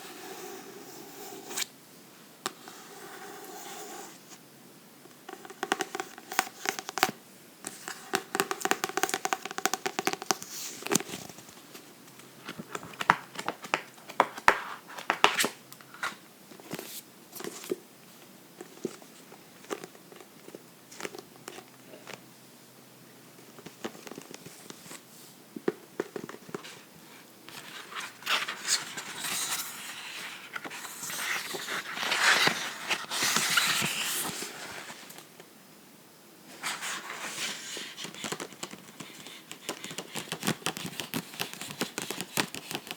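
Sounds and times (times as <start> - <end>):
scratching on a book: 36.6 - 42.9.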